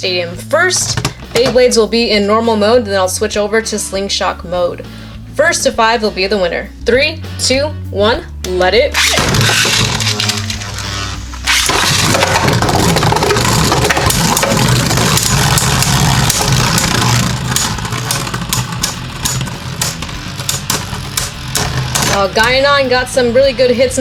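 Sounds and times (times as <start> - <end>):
plastic rattle of hits: 0.8 - 1.6, 9.0 - 22.7
spinning tops whirring and clashing: 9.0 - 23.4.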